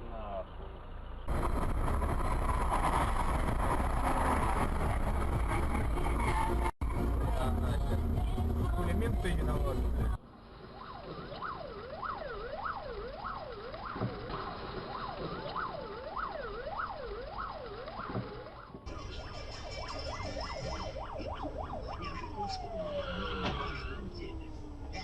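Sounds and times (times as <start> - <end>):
police siren wailing: 10.6 - 25.0.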